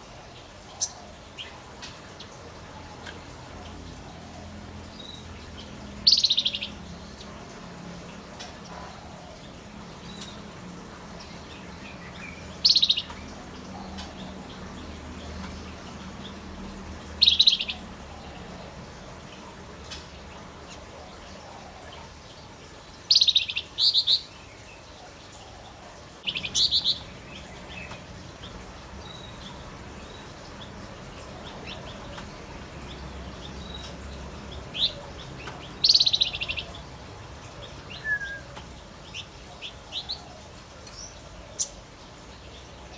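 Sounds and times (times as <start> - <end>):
bird chattering calls: 37.8 - 38.6.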